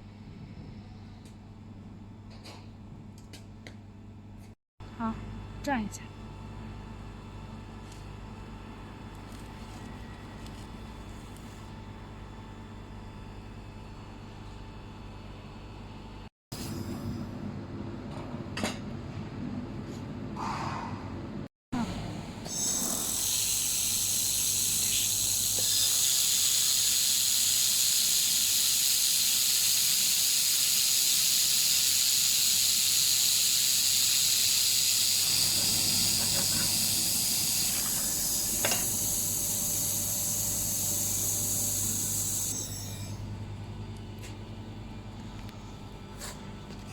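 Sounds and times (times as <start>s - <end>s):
laser welding head hissing: 22.5s - 42.9s.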